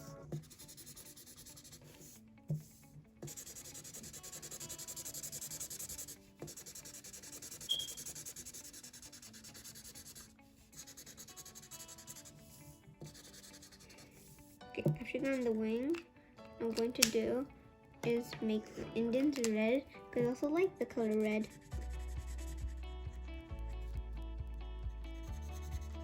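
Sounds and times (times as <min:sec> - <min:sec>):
marker scribbling on paper: 0:00.0 - 0:02.2, 0:03.2 - 0:14.3, 0:15.1 - 0:15.6, 0:20.8 - 0:22.8.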